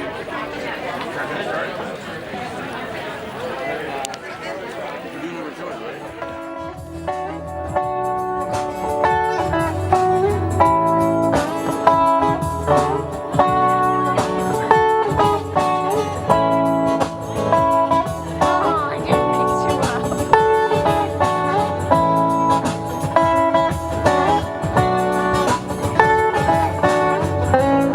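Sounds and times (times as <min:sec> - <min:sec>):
solo guitar playing: 0:06.0 - 0:27.9.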